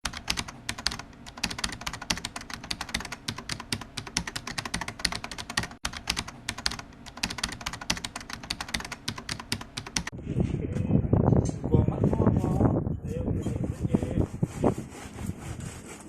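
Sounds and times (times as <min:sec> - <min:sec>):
rapid keyboard typing: 0:00.0 - 0:10.1.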